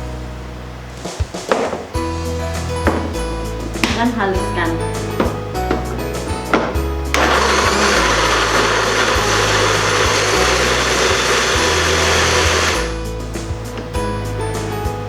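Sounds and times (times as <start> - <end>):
electric blender grinding: 7.1 - 13.0.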